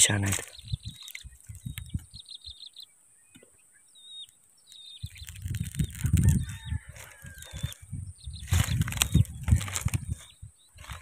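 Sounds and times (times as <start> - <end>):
low rumbling on microphone: 0.0 - 2.2, 5.0 - 11.0
small birds chirping: 0.0 - 11.0.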